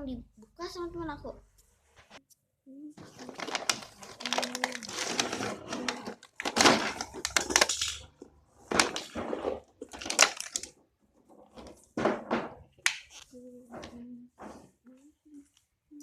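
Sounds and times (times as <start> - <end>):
cardboard box crinkling and rustling: 3.0 - 7.8, 8.7 - 10.7.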